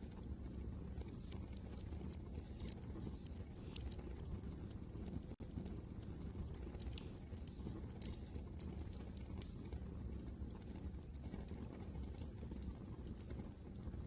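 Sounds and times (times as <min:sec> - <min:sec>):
low rumble of wind: 0:00.0 - 0:14.0
wood fire crackling and popping: 0:00.0 - 0:14.0.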